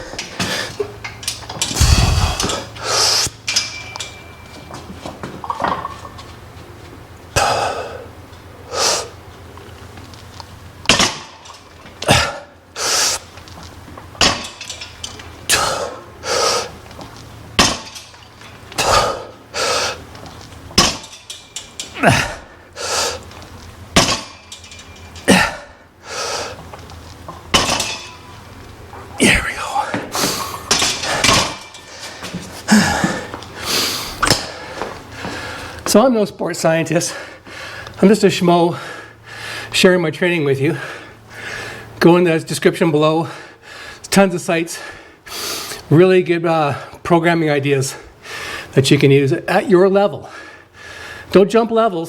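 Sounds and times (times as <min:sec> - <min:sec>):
hard breathing: 0:01.7 - 0:03.3, 0:18.8 - 0:20.1, 0:29.5 - 0:35.8, 0:40.7 - 0:41.9, 0:50.2 - 0:51.3.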